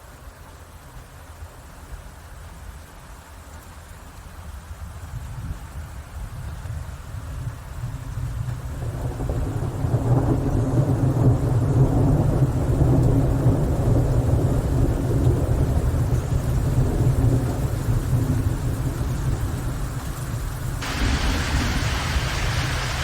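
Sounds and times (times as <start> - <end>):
rain falling: 0.0 - 23.0
thunder rolling: 20.8 - 23.0.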